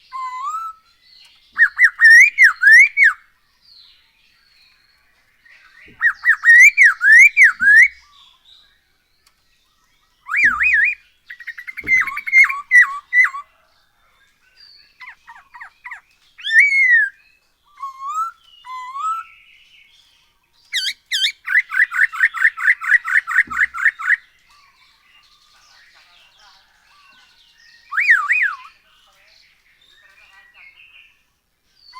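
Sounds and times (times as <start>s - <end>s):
bird singing whistled phrases: 0.0s - 0.9s, 1.5s - 3.3s, 5.6s - 8.8s, 10.1s - 13.5s, 14.8s - 19.6s, 20.7s - 24.3s, 27.7s - 28.8s.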